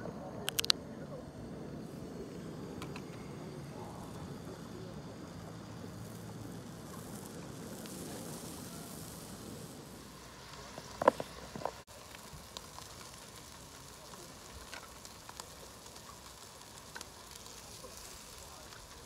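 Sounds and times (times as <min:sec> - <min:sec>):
sharp clicks: 0:00.4 - 0:00.8
steaks sizzling on a griddle: 0:03.7 - 0:19.0.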